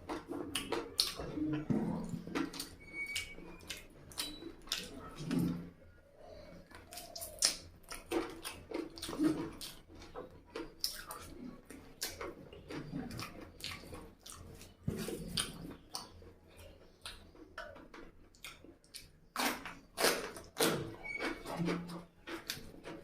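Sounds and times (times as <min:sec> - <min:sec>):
close-up chewing and mouth sounds: 0:00.0 - 0:23.0.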